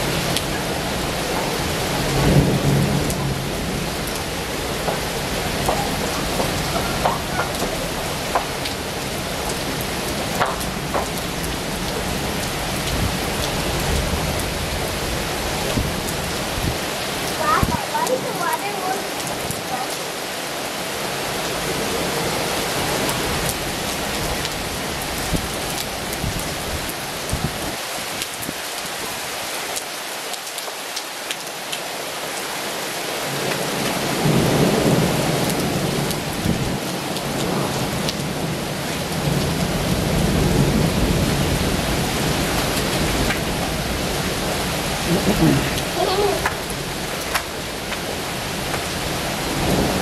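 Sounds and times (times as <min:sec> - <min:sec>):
raindrops ticking close by: 0:00.0 - 0:20.2, 0:33.3 - 0:50.0
heavy rain falling: 0:00.0 - 0:50.0.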